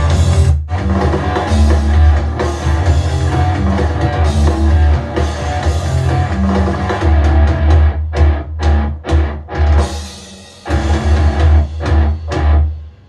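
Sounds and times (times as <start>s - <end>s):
rock music through speaker: 0.0s - 13.0s.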